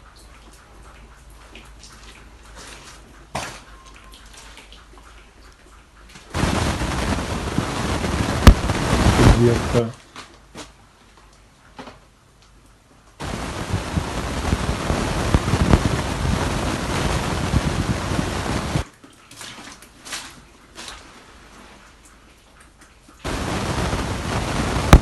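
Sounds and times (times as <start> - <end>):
water drips and clicks: 0.0 - 9.1, 18.8 - 23.5
water pouring and splashing: 0.0 - 10.2, 13.1 - 25.0.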